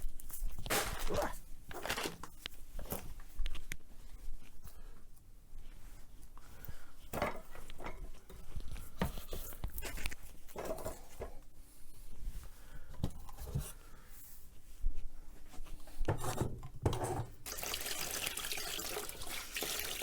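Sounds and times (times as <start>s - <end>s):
rustling and wiping: 0.0s - 6.6s, 13.4s - 16.1s.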